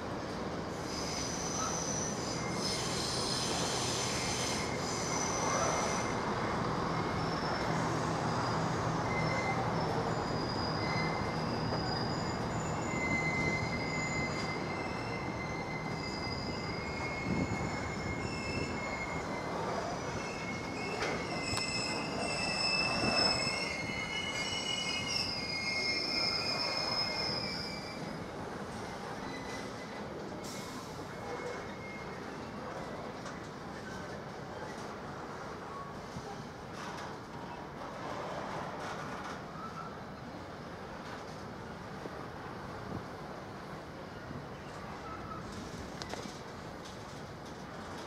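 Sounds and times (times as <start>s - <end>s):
train rumbling: 0.0s - 48.0s
wheels squealing on rails: 0.0s - 48.0s.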